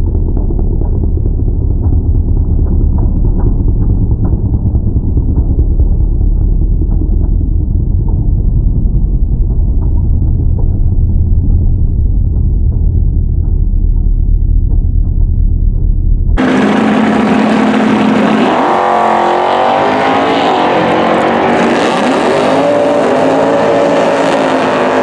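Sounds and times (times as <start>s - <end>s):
drag car engine idling: 0.0s - 18.6s.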